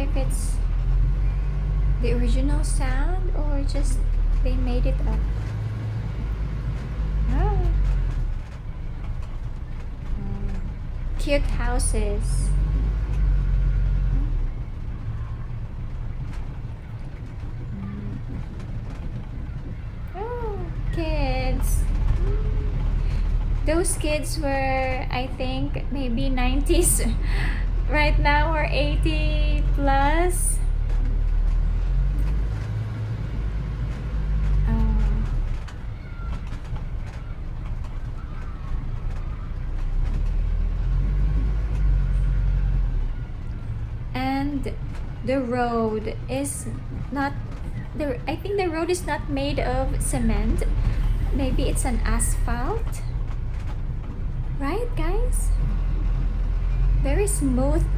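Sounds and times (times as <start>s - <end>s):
low street rumble: 0.0s - 57.9s.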